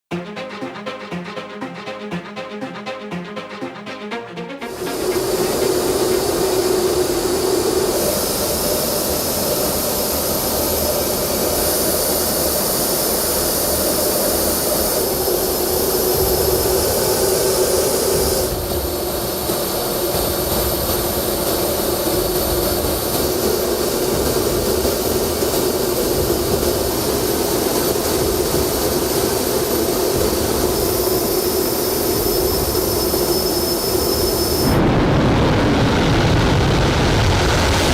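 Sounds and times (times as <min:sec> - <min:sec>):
jet engines roaring and whining: 0:02.7 - 0:37.9.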